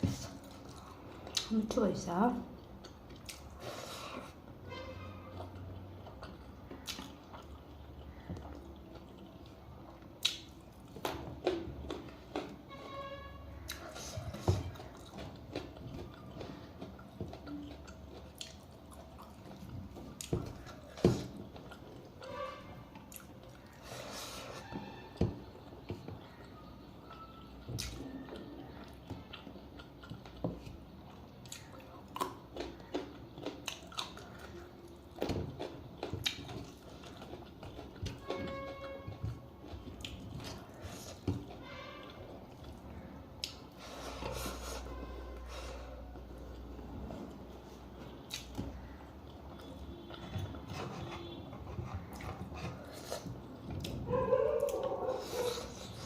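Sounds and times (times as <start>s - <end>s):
close chewing and biting: 0.0s - 1.6s, 2.6s - 4.5s, 5.3s - 12.6s, 13.6s - 56.0s
wet clicks and snaps: 10.1s - 11.2s, 48.2s - 49.0s.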